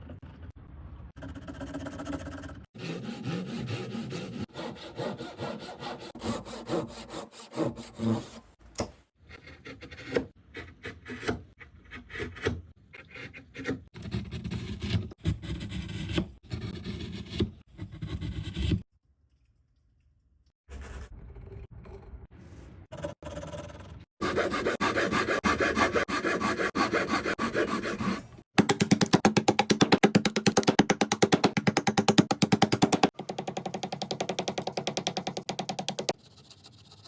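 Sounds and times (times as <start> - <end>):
hand saw cutting wood: 2.8 - 8.4, 24.2 - 28.4.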